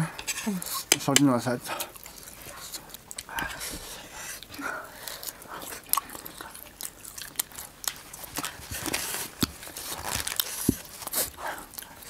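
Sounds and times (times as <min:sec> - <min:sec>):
people chewing food: 0:00.0 - 0:12.0
mouth clicks and smacks: 0:05.3 - 0:08.6.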